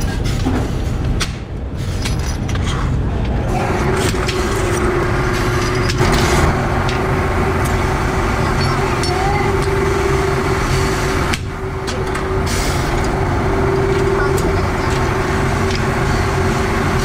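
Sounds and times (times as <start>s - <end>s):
steady hum: 0.0s - 17.0s
workshop machinery rumbling: 0.0s - 17.0s
clicks and knocks of work: 11.3s - 13.2s.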